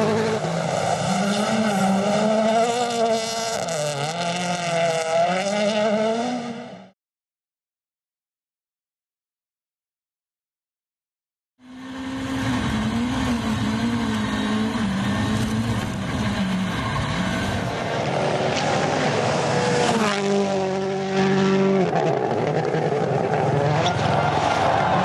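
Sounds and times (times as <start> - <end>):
rally car engine running hard: 11.7 - 25.0.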